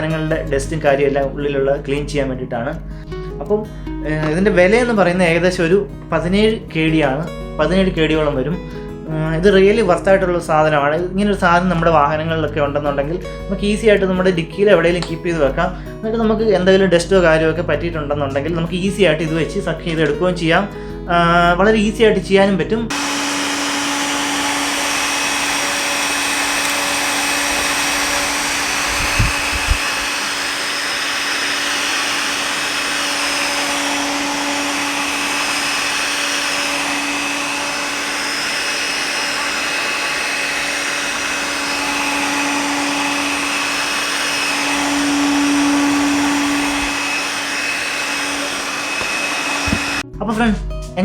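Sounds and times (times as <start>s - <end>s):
handheld vacuum cleaner running: 22.9s - 50.1s.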